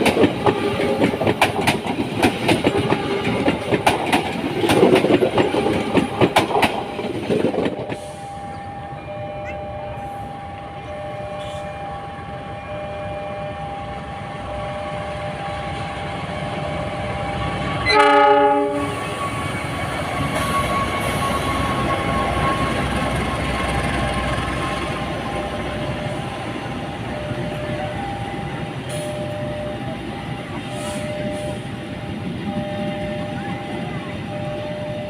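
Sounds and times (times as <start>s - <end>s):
train rumbling past: 0.0s - 35.0s
train horn blast: 17.8s - 19.5s.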